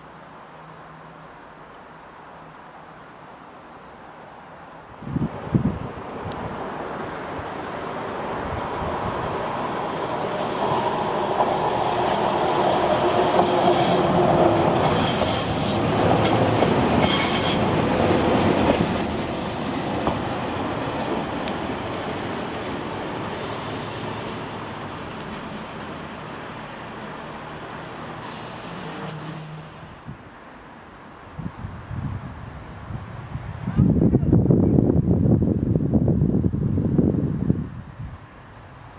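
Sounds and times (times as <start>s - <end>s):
train rumbling: 5.1s - 30.0s
train wheels squealing on rails: 8.9s - 21.9s, 23.2s - 24.5s, 26.2s - 30.2s.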